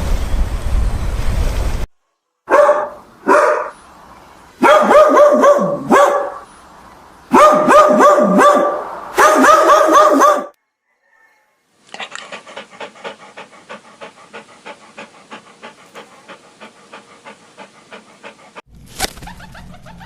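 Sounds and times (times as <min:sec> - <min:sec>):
low rumbling noise: 0:00.0 - 0:01.9
dog barking: 0:02.5 - 0:03.8, 0:04.6 - 0:06.5, 0:07.3 - 0:10.6.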